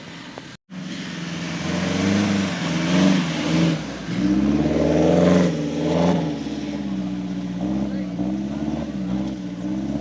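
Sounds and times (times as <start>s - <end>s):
hiss of tyres in mud: 0.0s - 6.9s
jeep engine revving: 0.7s - 10.0s.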